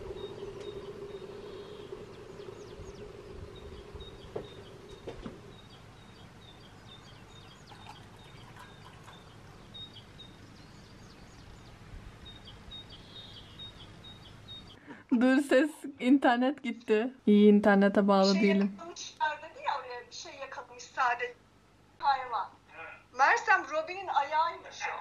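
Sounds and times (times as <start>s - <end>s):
steady low tone: 0.0s - 7.7s
small birds chirping: 0.0s - 15.0s
faint outdoor background: 0.0s - 25.0s.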